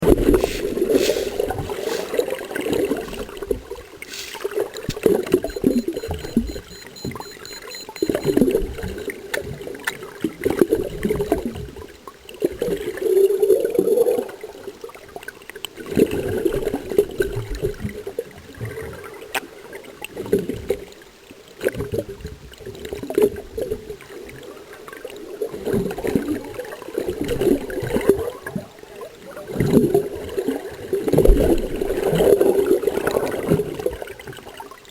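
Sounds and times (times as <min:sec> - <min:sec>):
water sloshing and gurgling: 0:00.0 - 0:08.2.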